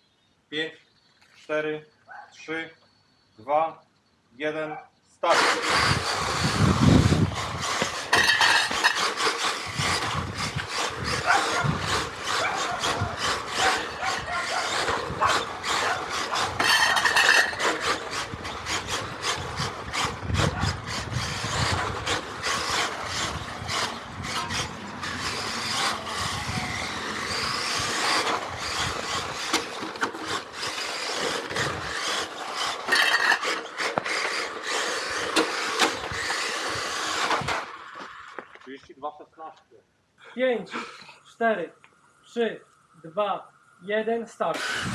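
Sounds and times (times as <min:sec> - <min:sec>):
tyres scrubbing on asphalt: 0:05.3 - 0:38.5
electric motor whine: 0:05.4 - 0:38.1, 0:44.5 - 0:44.9.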